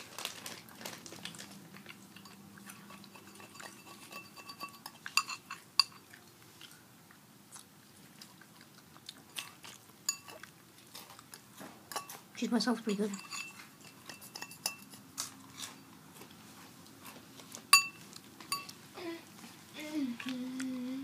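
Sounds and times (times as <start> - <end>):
crunchy chewing of chips: 0.0 - 12.4, 14.8 - 18.8.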